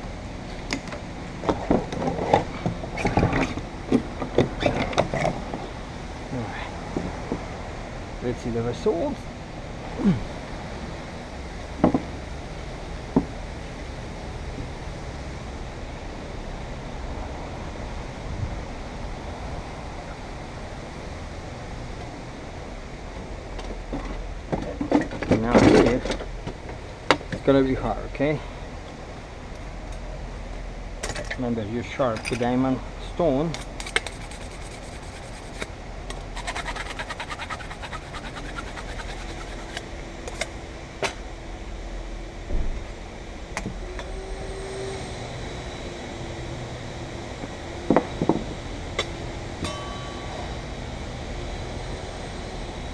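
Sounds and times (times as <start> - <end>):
fan-like hum: 0.0 - 52.9
steady rushing noise: 33.2 - 41.0.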